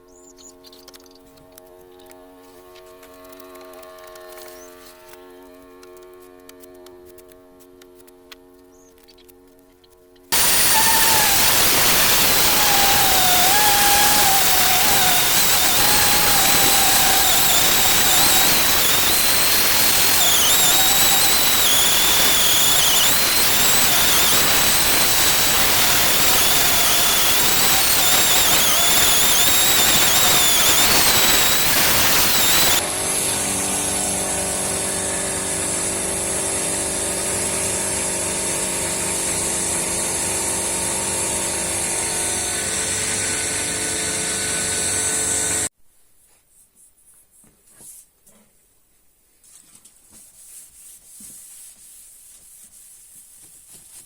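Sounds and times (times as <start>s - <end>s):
power tool hissing and whining: 10.3s - 45.7s.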